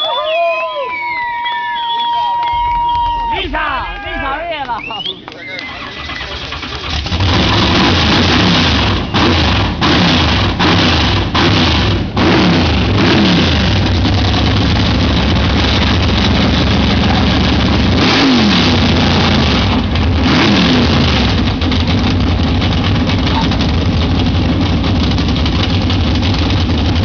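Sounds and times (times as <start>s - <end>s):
car engine revving hard: 6.4s - 27.0s.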